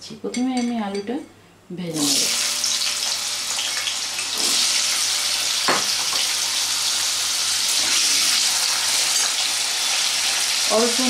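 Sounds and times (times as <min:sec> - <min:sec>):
potatoes sizzling in hot oil: 0:01.9 - 0:11.0
single knock: 0:05.7 - 0:05.9.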